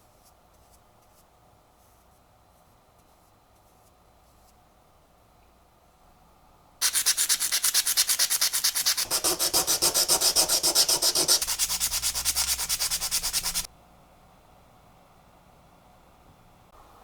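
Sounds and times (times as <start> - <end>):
sandpaper rubbing back and forth: 6.8 - 13.7.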